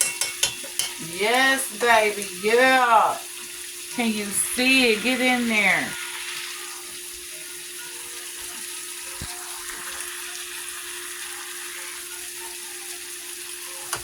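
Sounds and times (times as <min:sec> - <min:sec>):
steak sizzling in a pan: 0:00.0 - 0:14.0.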